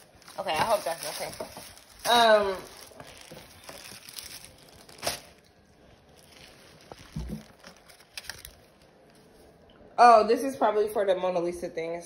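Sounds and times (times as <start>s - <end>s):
packaging crinkling: 0.0s - 9.3s.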